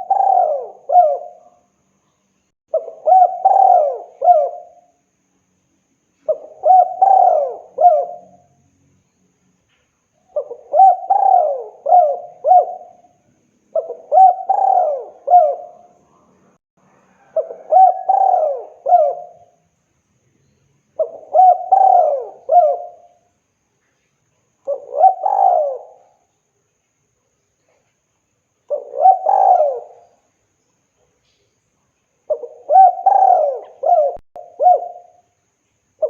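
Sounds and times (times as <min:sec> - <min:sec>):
dove cooing: 0:00.0 - 0:01.6, 0:02.7 - 0:04.8, 0:06.3 - 0:08.4, 0:10.3 - 0:16.0, 0:17.2 - 0:19.6, 0:21.0 - 0:23.2, 0:24.7 - 0:26.2, 0:28.7 - 0:30.2, 0:32.3 - 0:35.2.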